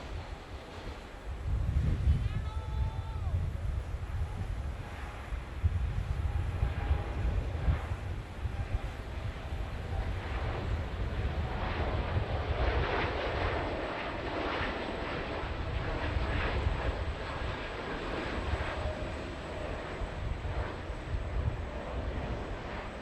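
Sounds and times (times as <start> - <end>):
jet engines passing: 0.0 - 23.0.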